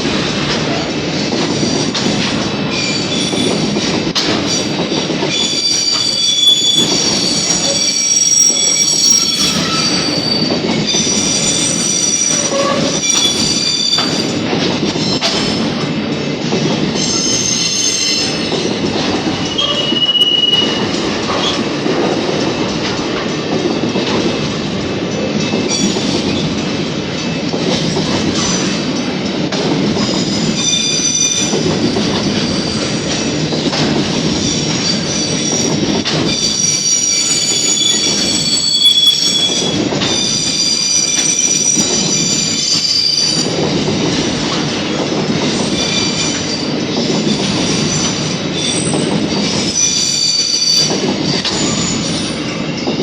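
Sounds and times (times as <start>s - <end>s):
train wheels rumbling on rails: 0.0s - 53.0s
high-pitched wheel squeal: 5.4s - 10.5s, 11.6s - 14.2s, 36.3s - 39.8s.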